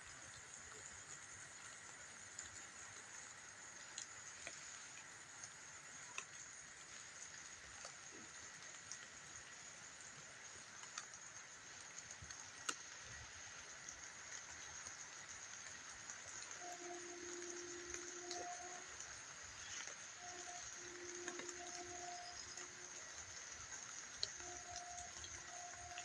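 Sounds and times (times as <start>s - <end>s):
steady high-pitched hiss: 0.0s - 26.0s
soft ticks: 6.1s - 6.5s, 10.8s - 26.0s.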